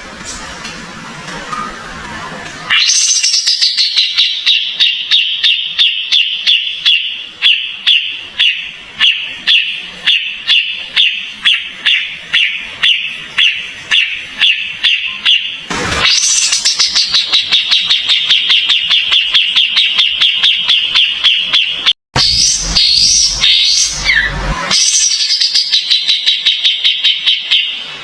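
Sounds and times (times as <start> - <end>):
songbird calling: 2.7 - 15.6.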